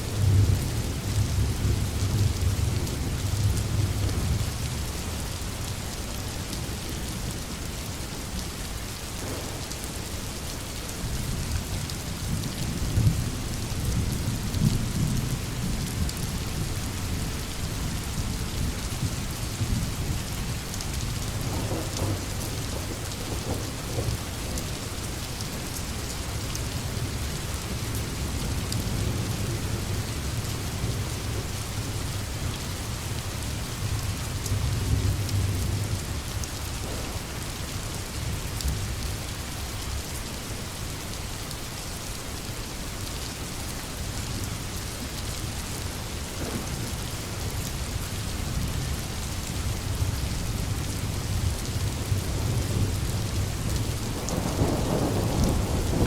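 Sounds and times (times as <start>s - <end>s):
heavy rain falling: 0.0s - 56.0s
rolling thunder: 9.2s - 10.0s, 19.6s - 25.8s, 33.8s - 39.0s, 46.3s - 49.0s, 49.9s - 56.0s.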